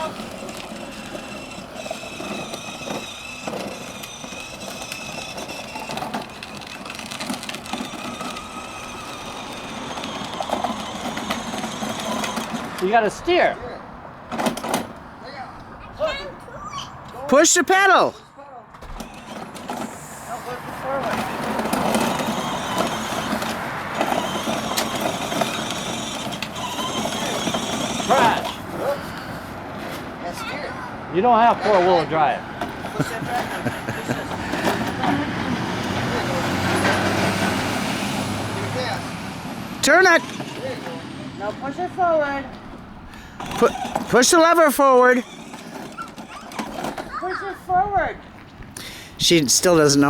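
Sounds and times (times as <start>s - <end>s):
toy car electric motor whine: 0.0s - 13.4s, 14.3s - 15.0s, 18.8s - 29.5s, 32.6s - 42.5s, 43.1s - 47.8s.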